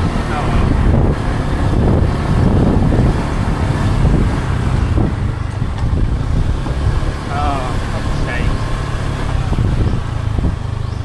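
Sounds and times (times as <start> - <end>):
motor vehicle running: 0.0 - 11.0
wind buffeting microphone: 0.0 - 11.0.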